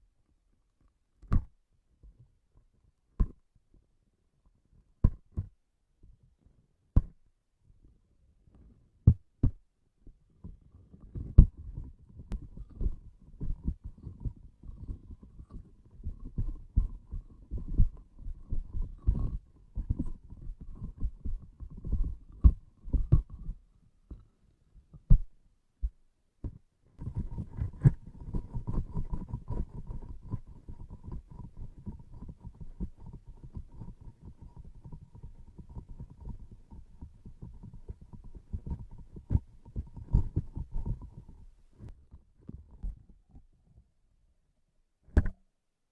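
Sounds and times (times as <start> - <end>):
soft low thumps: 25.1 - 33.8.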